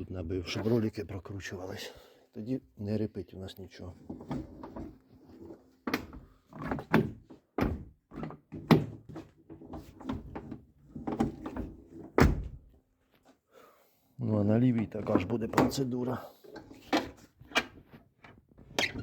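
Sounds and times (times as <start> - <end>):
car door opening and shutting: 10.1 - 12.7.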